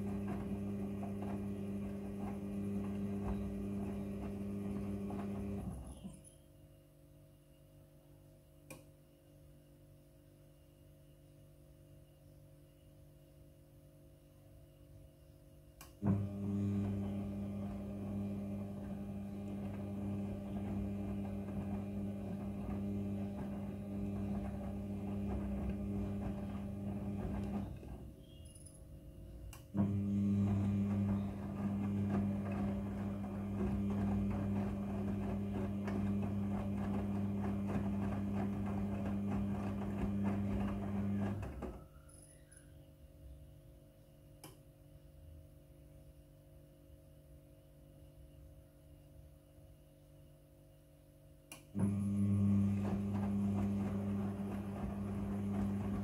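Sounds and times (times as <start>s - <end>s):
washing machine running: 0.0s - 6.4s, 15.9s - 42.1s, 51.7s - 56.0s.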